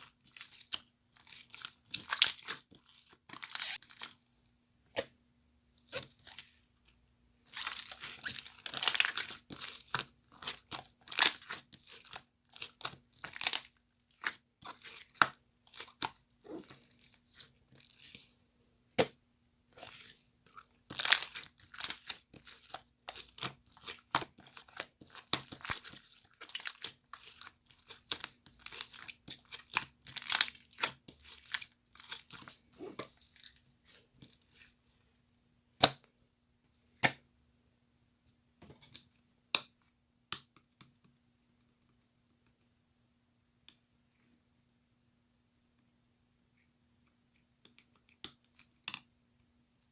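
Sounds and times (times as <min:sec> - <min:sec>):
close-up crinkling and crunching: 0:00.0 - 0:04.2, 0:05.8 - 0:06.7, 0:07.4 - 0:18.3, 0:19.8 - 0:34.8.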